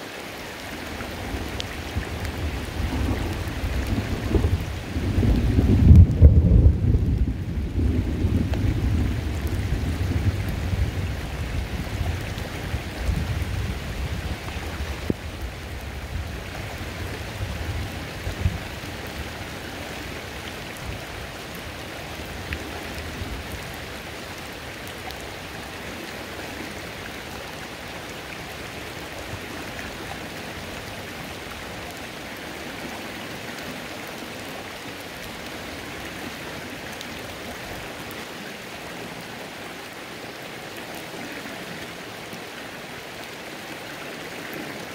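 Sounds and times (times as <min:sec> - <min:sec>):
rain on a creek: 0:00.0 - 0:44.9
thunder rumble: 0:01.4 - 0:19.6.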